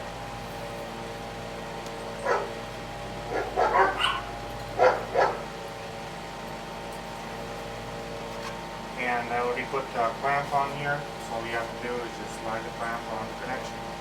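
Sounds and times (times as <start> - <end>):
background hum: 0.0 - 14.0
dog barking: 2.2 - 2.6, 3.3 - 5.5.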